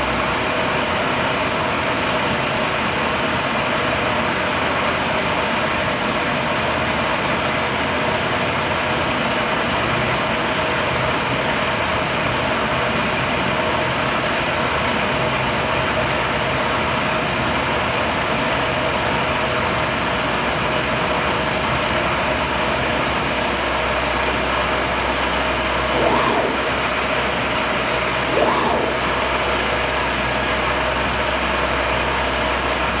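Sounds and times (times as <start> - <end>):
milling machine hum: 25.5 - 30.6
short loud machine sounds: 25.8 - 30.2
deeper low hum: 25.8 - 30.6.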